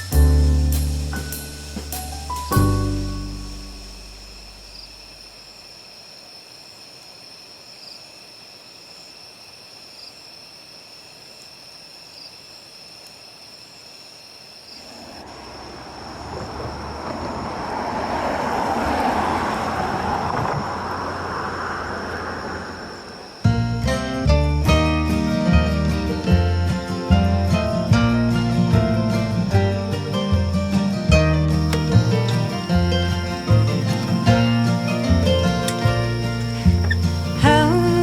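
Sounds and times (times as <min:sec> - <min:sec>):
high-pitched insect trilling: 0:03.0 - 0:17.8, 0:24.7 - 0:38.0
vehicle passing: 0:14.8 - 0:23.8, 0:28.8 - 0:38.0.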